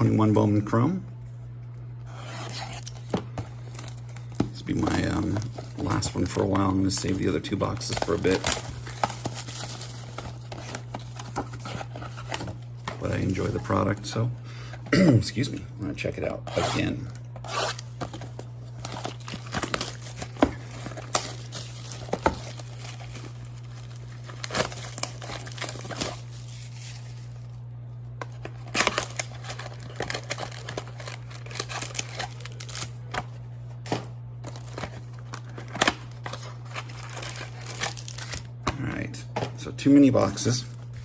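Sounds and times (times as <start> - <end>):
packaging tearing: 2.1 - 13.7, 16.5 - 27.5, 28.3 - 33.3, 34.4 - 38.6
plastic wrapping crinkling: 2.3 - 13.8, 17.3 - 38.6.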